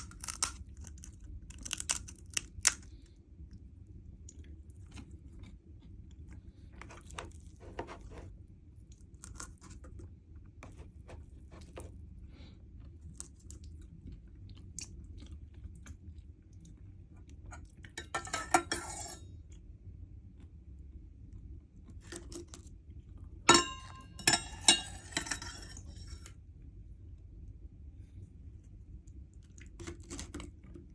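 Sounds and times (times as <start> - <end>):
chewing crisp shells: 0.0 - 3.1, 8.8 - 10.1, 12.8 - 16.8, 29.4 - 30.8.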